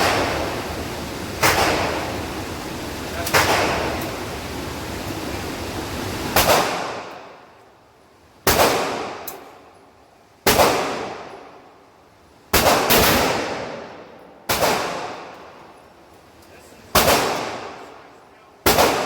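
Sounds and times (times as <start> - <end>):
pistol shots ringing: 18.6 - 19.0.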